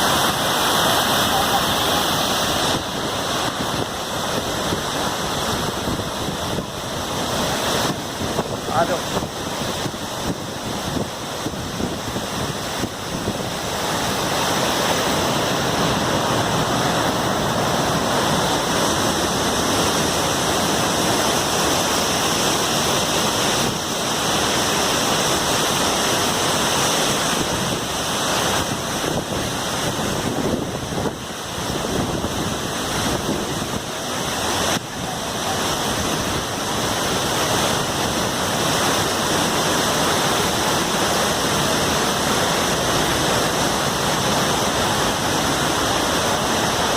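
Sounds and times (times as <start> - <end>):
waterfall rushing: 0.0 - 46.9
wind buffeting microphone: 1.8 - 13.7, 28.6 - 38.3.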